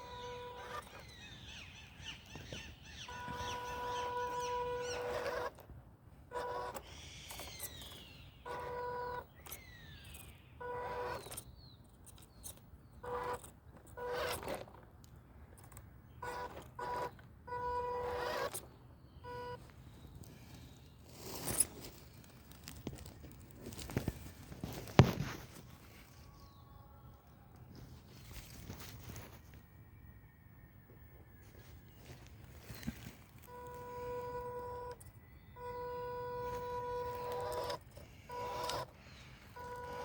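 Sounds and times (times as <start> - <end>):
faint bird chirps: 0.0 - 5.3, 6.8 - 12.6
electric motor whining in bursts: 0.0 - 11.7, 12.3 - 14.8, 16.2 - 19.7, 33.4 - 40.0.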